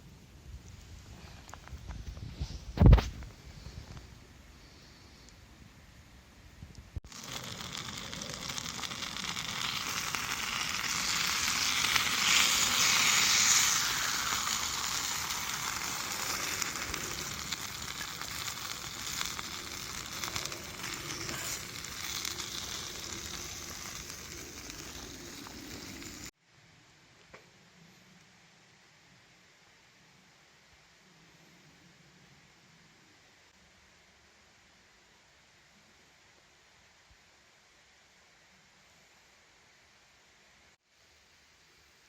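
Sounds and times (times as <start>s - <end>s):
food sizzling in a pan: 7.1s - 26.3s.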